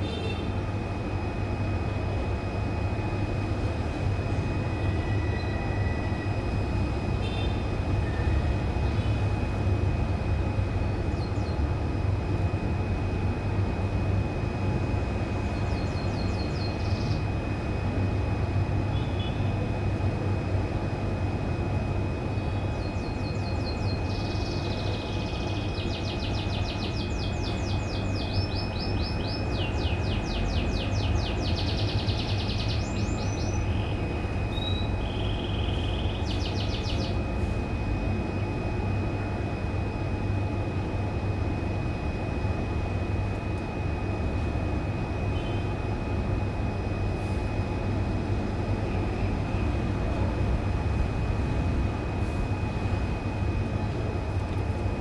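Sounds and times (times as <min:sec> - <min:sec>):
loud steady low rumble: 0:00.0 - 0:55.0
thin steady whine: 0:00.0 - 0:55.0
canary trilling: 0:34.6 - 0:37.2.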